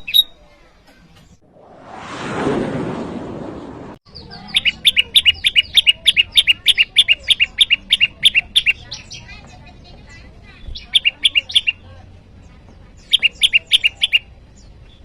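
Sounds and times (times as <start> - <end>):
bird sharp chirps: 0.0 - 0.4, 4.1 - 9.6, 10.6 - 11.8, 13.0 - 15.0.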